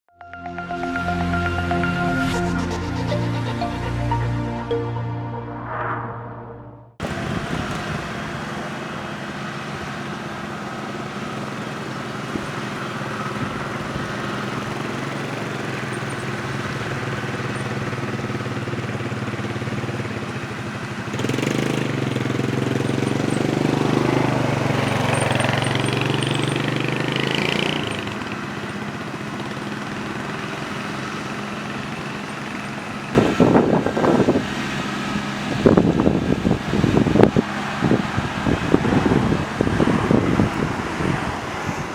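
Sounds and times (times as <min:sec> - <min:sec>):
combine harvester engine running: 0:07.0 - 0:41.9.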